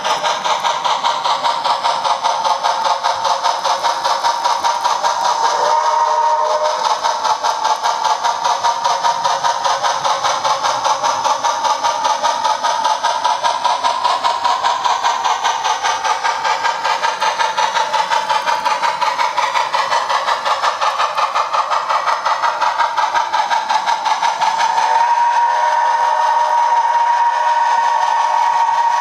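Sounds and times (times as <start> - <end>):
model locomotive running sound: 0.0 - 29.0
locomotive whistle tone: 5.4 - 7.0, 24.7 - 29.0.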